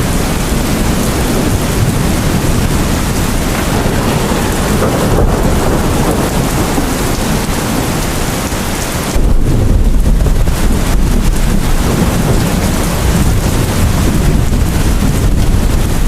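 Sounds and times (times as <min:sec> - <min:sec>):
deep rumble of thunder: 0:00.0 - 0:16.0
heavy rain falling: 0:00.0 - 0:16.0.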